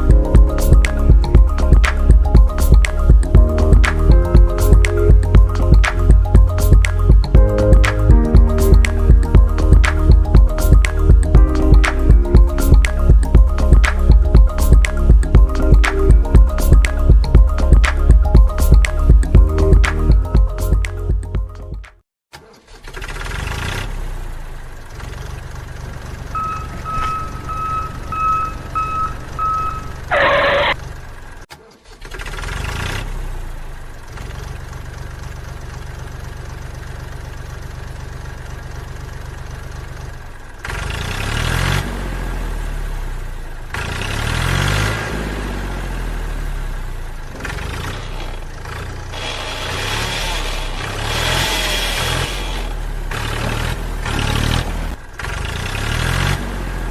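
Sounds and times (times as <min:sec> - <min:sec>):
mini tractor engine running: 0:22.4 - 0:41.7, 0:47.1 - 0:56.9
brief falling tone: 0:26.4 - 0:30.8
short beeps: 0:26.4 - 0:30.8.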